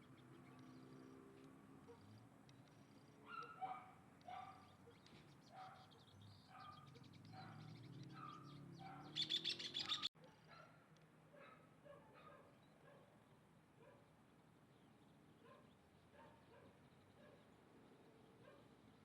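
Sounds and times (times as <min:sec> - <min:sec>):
bird chirps: 0:00.0 - 0:10.6
high-pitched bird chatter: 0:02.0 - 0:10.1.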